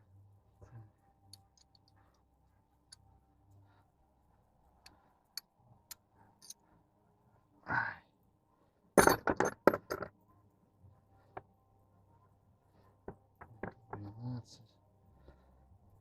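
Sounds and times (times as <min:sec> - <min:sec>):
metallic clinks and knocks: 0:01.3 - 0:02.0, 0:05.3 - 0:06.6, 0:09.0 - 0:10.2, 0:13.1 - 0:14.1.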